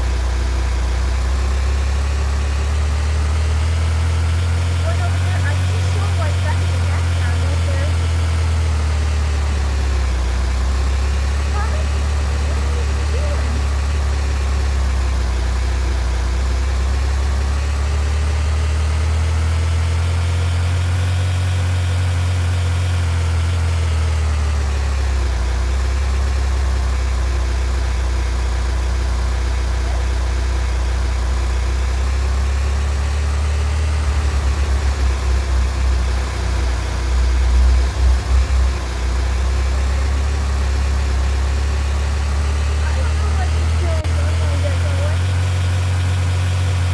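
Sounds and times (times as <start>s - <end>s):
vehicle engine droning: 0.0s - 46.9s
low pulsing thumps: 34.6s - 39.6s.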